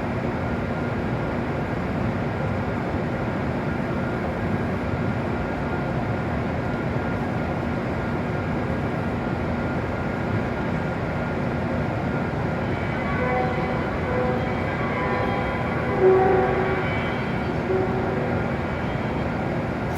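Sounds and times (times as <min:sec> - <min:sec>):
train equipment humming: 0:10.6 - 0:19.9
higher electronic tones: 0:11.9 - 0:19.9.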